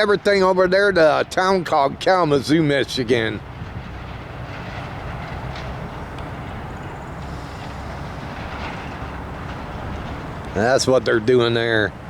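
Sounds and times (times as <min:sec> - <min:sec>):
diesel train rumbling by: 0:00.0 - 0:12.0
faint clicks from rails: 0:03.7 - 0:10.7.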